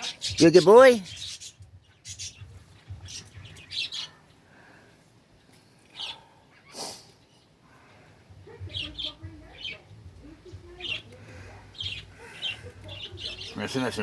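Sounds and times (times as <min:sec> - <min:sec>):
pet bird chirping: 0:00.0 - 0:04.3, 0:08.5 - 0:14.0.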